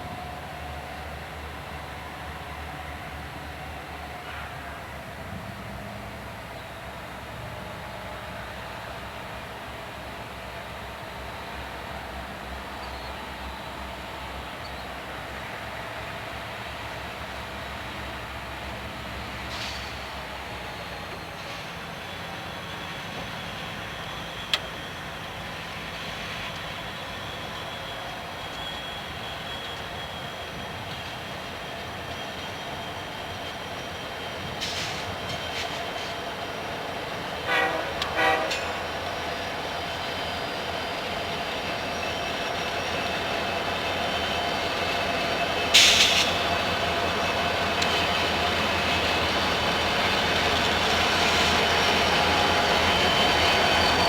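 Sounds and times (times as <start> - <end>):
freight train running: 0.0 - 54.0
train horn toots: 37.4 - 39.0.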